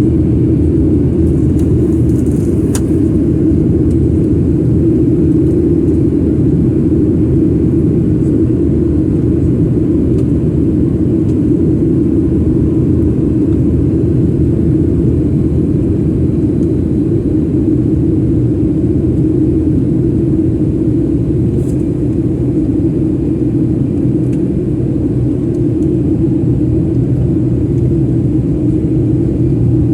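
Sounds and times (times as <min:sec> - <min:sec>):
airliner cabin rumble: 0:00.0 - 0:29.9.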